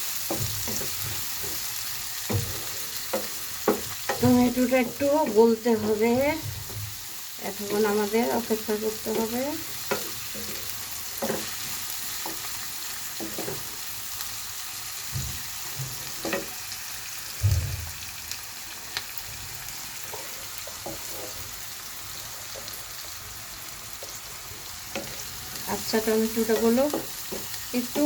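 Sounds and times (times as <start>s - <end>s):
vegetables sizzling in oil: 0.0s - 28.0s
spoon knocking against pan: 0.2s - 7.0s, 13.2s - 13.7s, 26.3s - 28.0s.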